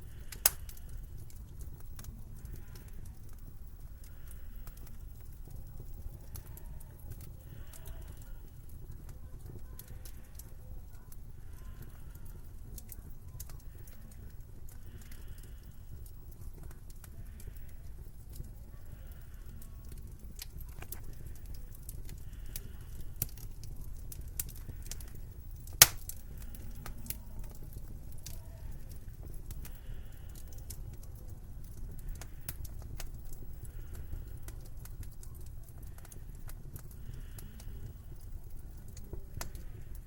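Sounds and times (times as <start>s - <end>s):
wood fire crackling: 0.0s - 40.0s
loud fire pop: 25.8s - 26.1s.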